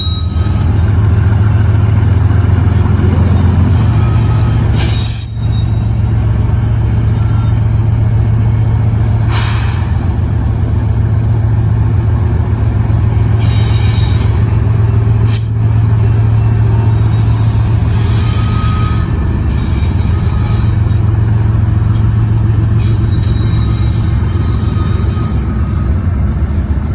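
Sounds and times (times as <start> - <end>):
diesel locomotive engine drone: 0.0 - 26.9.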